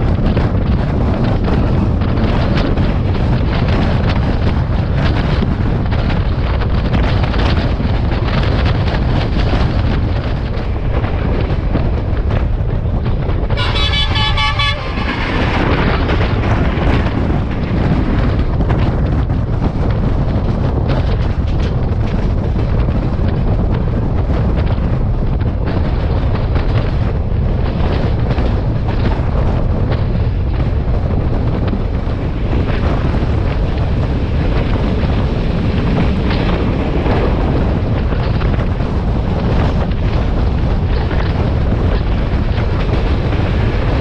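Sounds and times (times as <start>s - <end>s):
train running rumble: 0.0s - 44.0s
wind noise: 0.0s - 44.0s
train horn blast: 13.5s - 15.7s.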